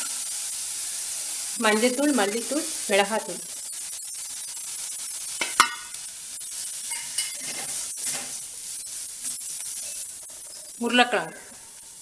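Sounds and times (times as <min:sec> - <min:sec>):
onions sizzling in oil: 0:00.0 - 0:12.0
spatula scraping pan: 0:03.6 - 0:10.9.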